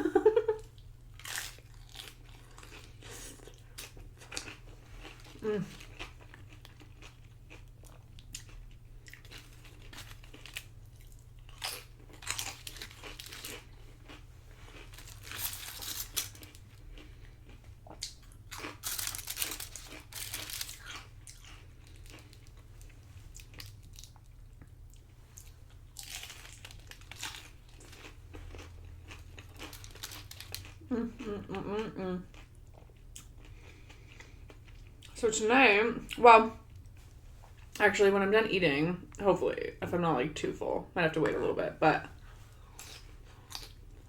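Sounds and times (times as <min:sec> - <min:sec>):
chips crunching while chewing: 0:01.1 - 0:30.9.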